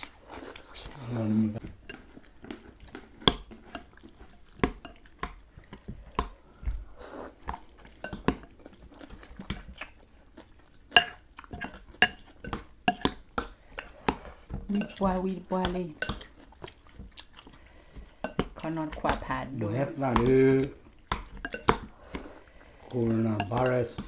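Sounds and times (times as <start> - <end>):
utensils clinking against bowls: 11.0 - 13.2, 14.2 - 16.4, 21.3 - 22.2, 23.0 - 24.0.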